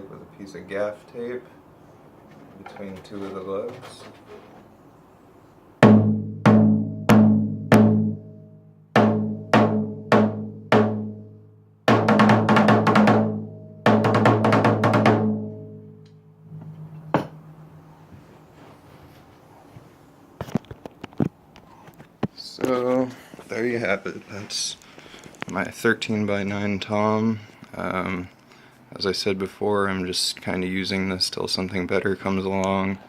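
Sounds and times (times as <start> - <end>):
tom drum hits: 5.8 - 8.2, 9.0 - 11.2, 11.9 - 15.8, 16.5 - 17.6.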